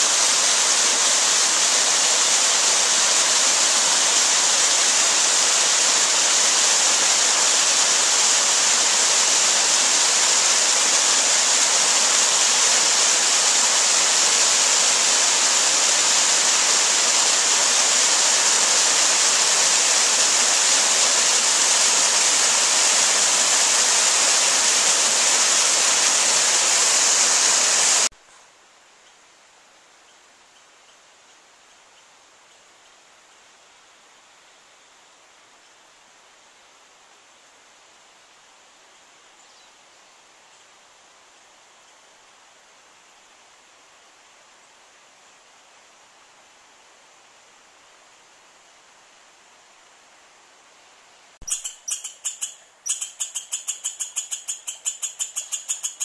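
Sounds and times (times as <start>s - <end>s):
water rushing: 0.0s - 28.1s
faint hiss: 0.0s - 56.0s.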